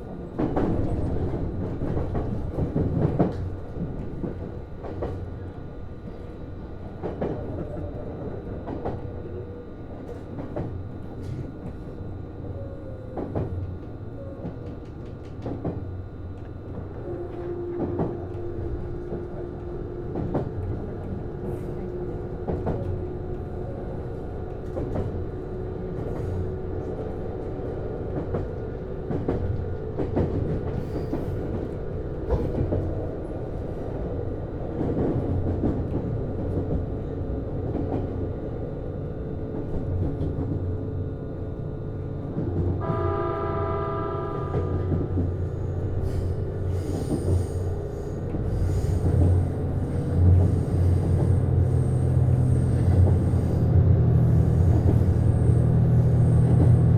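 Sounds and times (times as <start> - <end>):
railcar engine and motor hum: 0.0 - 56.9
train horn: 16.8 - 20.4, 42.8 - 45.7.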